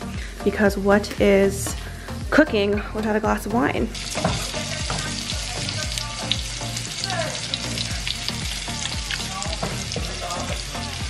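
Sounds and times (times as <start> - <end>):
fish sizzling in a pan: 3.9 - 11.0
wooden spoon stirring in saucepan: 4.0 - 10.8.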